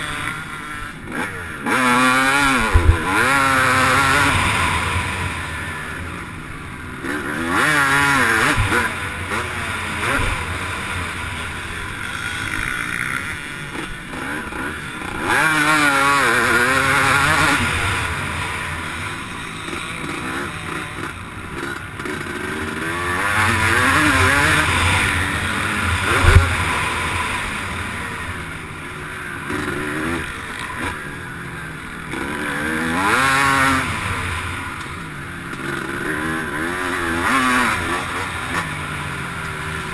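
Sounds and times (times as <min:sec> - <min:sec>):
motocross bike engine revving: 0:00.0 - 0:39.9
sharp thump: 0:02.7 - 0:03.1.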